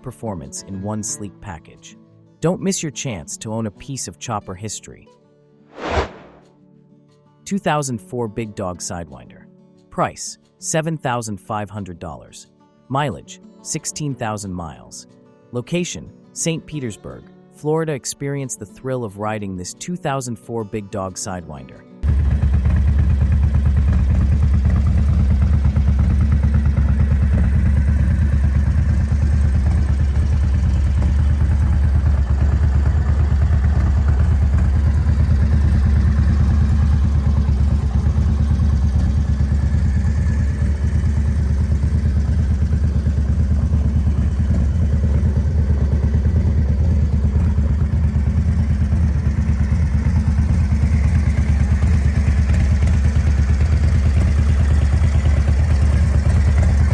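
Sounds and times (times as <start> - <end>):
motorcycle engine idling: 22.0 - 56.9.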